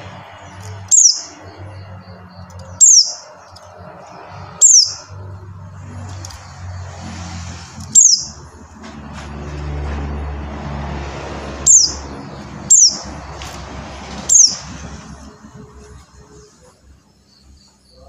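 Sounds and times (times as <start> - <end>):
bird giving sharp downward calls: 0.9 - 1.4, 2.7 - 3.3, 4.5 - 5.2, 7.9 - 8.4, 11.6 - 13.2, 14.3 - 14.6.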